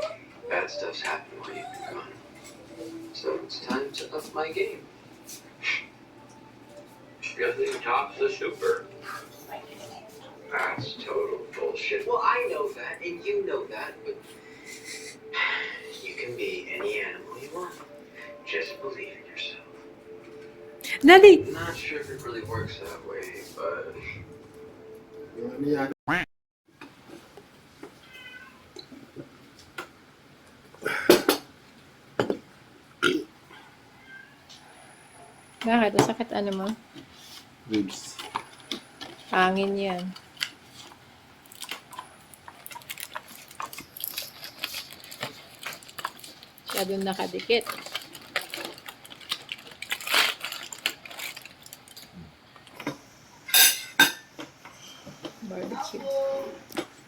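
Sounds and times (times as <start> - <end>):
small animal crying: 0.0 - 2.2
dishes and cutlery clattering: 52.8 - 54.4.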